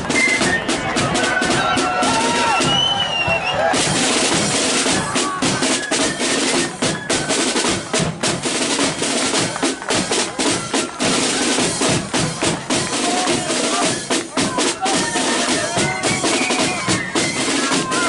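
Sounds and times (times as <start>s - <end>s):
faint flutes: 0.0s - 3.9s, 4.9s - 7.9s, 12.7s - 18.0s
bass drum beat: 0.0s - 18.0s
snare drum rolls: 0.0s - 18.0s.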